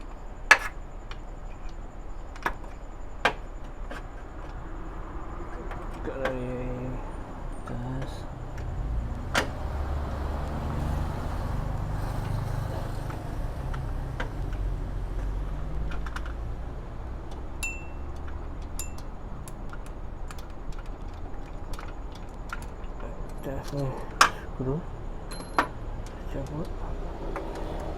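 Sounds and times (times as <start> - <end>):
metallic clinks of hand tools: 17.6 - 18.2, 18.8 - 19.2.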